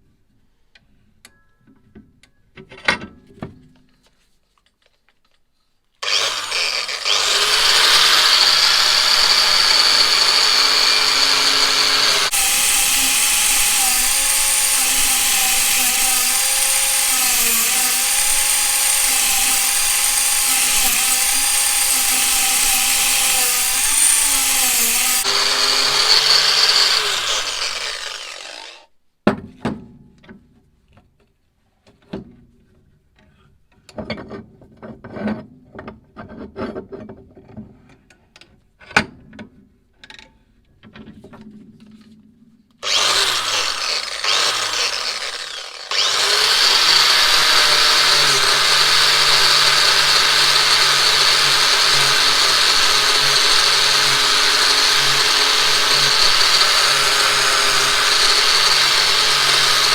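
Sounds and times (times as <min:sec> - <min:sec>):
power tool grinding metal: 0:06.0 - 0:28.9, 0:42.8 - 0:59.9.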